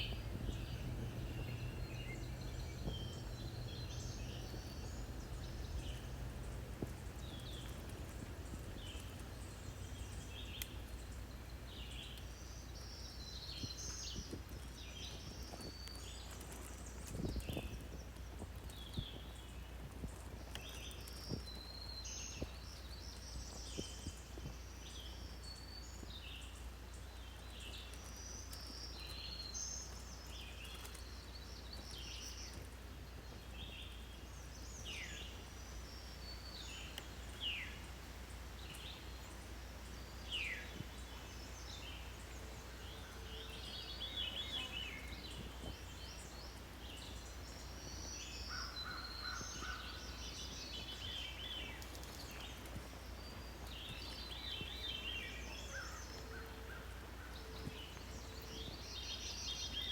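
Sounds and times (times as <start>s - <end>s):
steady low rumble: 0.0s - 13.2s
birds singing and chirping: 0.0s - 18.0s, 33.6s - 59.9s.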